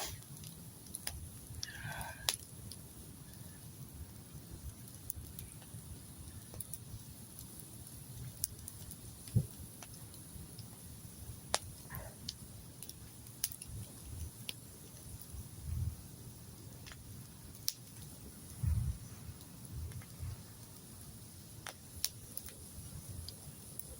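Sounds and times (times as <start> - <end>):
campfire crackling and popping: 0.0 - 23.9
low steady rumble: 18.2 - 21.6.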